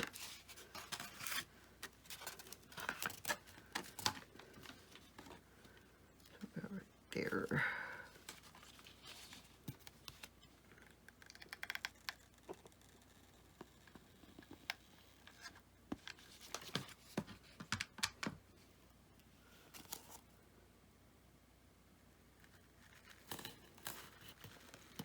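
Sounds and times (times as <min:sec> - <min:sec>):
soft rustle: 0:07.2 - 0:10.8.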